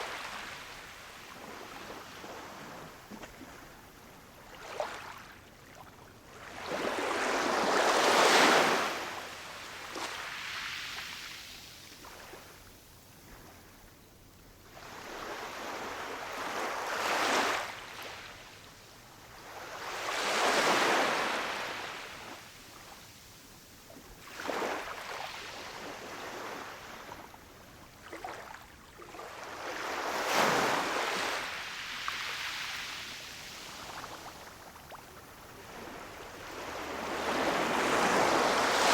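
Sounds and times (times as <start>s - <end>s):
ocean waves breaking on shore: 29.2s - 38.9s.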